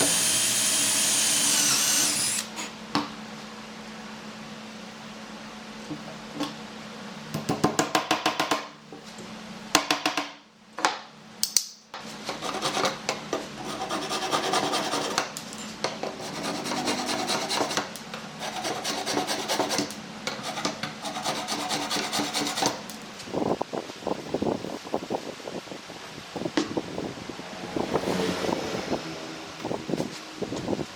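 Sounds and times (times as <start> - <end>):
sanding wood by hand: 13.6 - 15.2, 16.2 - 17.8, 18.4 - 19.8, 20.4 - 22.6.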